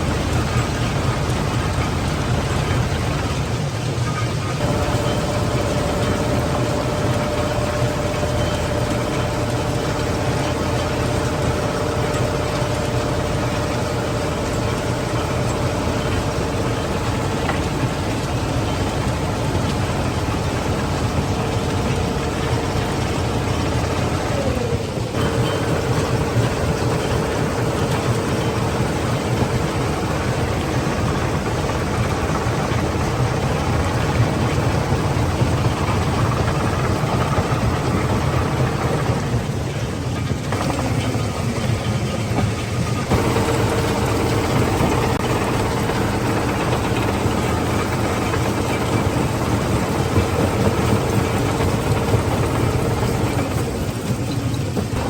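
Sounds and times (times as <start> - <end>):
machinery engine rumble: 0.0 - 55.0
mid-pitched machine whine: 0.0 - 55.0.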